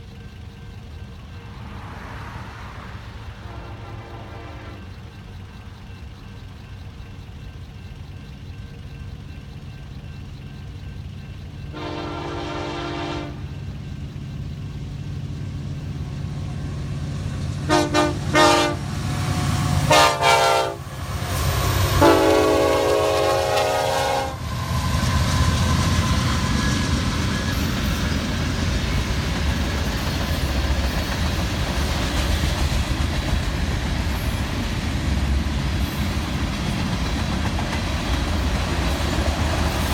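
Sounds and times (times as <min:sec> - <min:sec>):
locomotive engine rumble: 0:00.0 - 0:39.9
train wheel noise: 0:00.0 - 0:39.9
train air horn blasts: 0:03.4 - 0:05.0, 0:11.7 - 0:13.5, 0:17.6 - 0:24.4.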